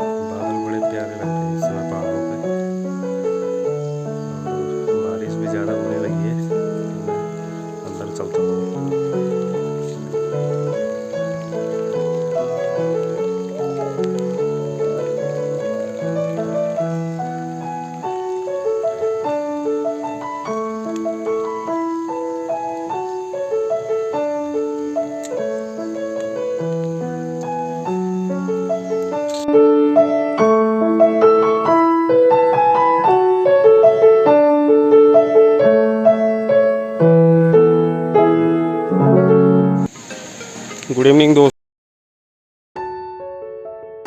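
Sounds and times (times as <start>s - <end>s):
slow piano melody: 0.0s - 41.5s, 42.8s - 44.0s
burst of noise: 39.0s - 41.5s.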